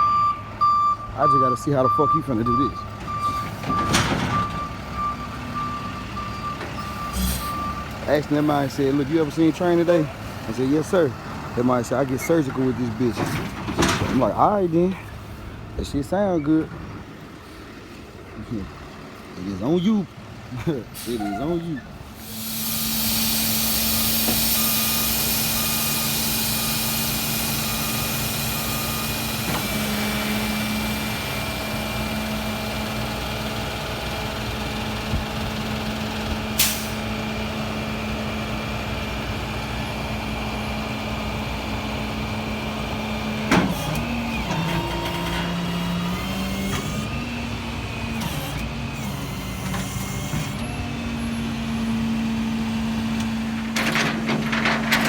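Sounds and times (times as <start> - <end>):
warning beeps: 0.0 - 7.9
truck engine running: 1.2 - 55.0
hydraulic hiss: 22.1 - 29.0.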